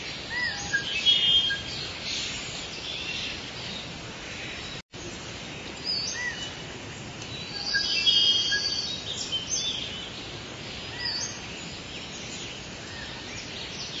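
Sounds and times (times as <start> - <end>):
birds singing: 0.0 - 14.0
steady background hiss: 0.0 - 14.0.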